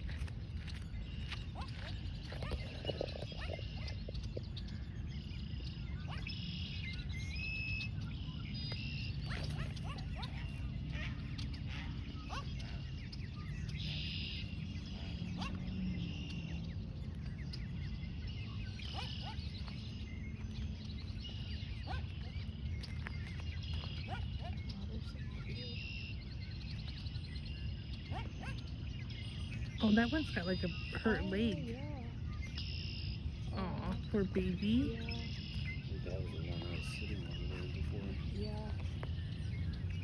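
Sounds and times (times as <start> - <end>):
steady low rumble: 9.9 - 40.0.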